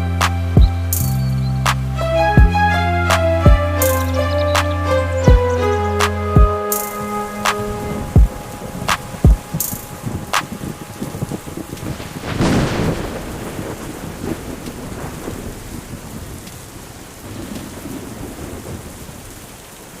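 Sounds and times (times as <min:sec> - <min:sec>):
steady rain: 0:00.0 - 0:20.0
thunder rumbling: 0:01.6 - 0:20.0
loud thunder crack: 0:06.4 - 0:19.3.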